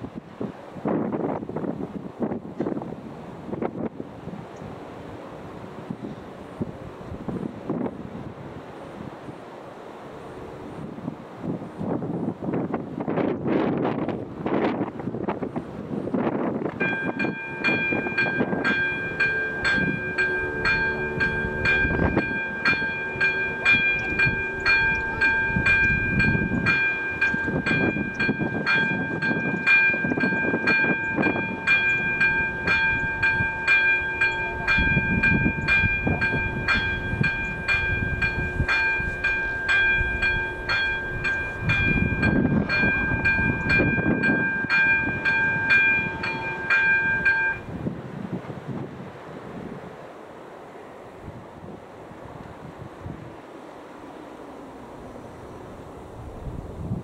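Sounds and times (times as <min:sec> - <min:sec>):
level crossing bell ringing: 0:16.8 - 0:47.7.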